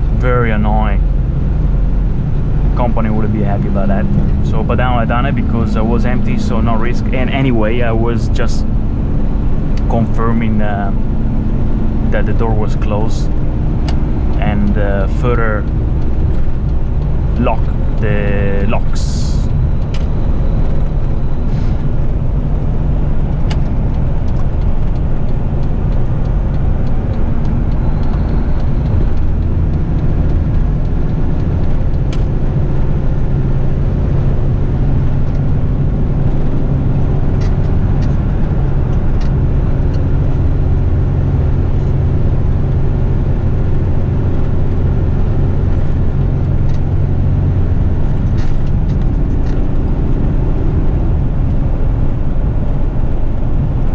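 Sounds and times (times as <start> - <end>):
truck engine droning: 0.0 - 53.9.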